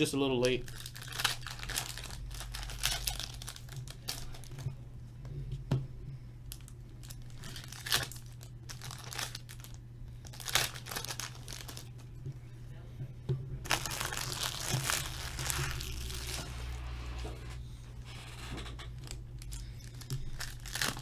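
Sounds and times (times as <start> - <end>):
card pack wrappers crinkling: 0.0 - 4.7, 6.5 - 12.0, 13.6 - 16.8, 19.0 - 21.0
steady low hum: 0.0 - 21.0.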